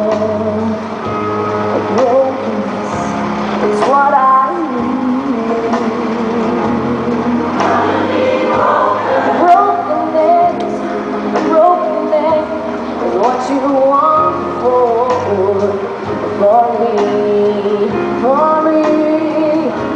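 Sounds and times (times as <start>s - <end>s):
band accompanying: 0.0s - 19.9s
gospel choir singing: 7.2s - 11.6s.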